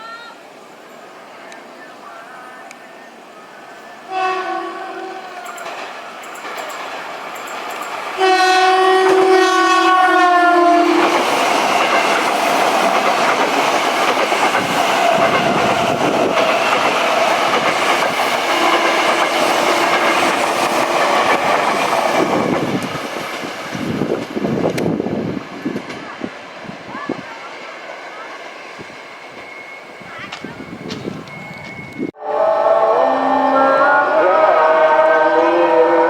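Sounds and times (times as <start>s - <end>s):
train wheels rushing on rails: 0.6s - 32.2s
train horn blast: 4.1s - 5.4s, 8.2s - 11.2s, 18.4s - 19.9s, 32.2s - 36.0s.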